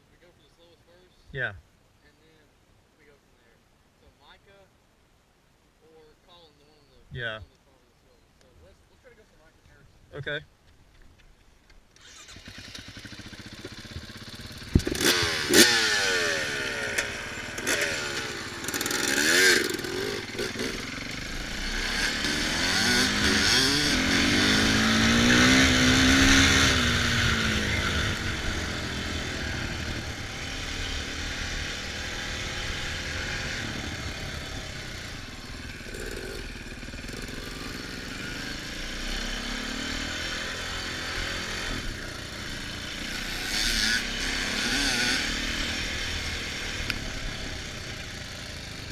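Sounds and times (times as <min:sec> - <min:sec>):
dirt bike engine revving: 0:12.0 - 0:48.9.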